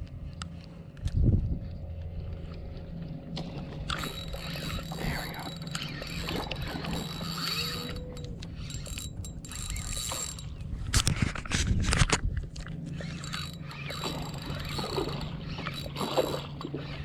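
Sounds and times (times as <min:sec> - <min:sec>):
boat motor humming: 0:00.0 - 0:11.5, 0:12.3 - 0:17.0
fishing reel clicking: 0:03.8 - 0:10.8, 0:12.9 - 0:17.0.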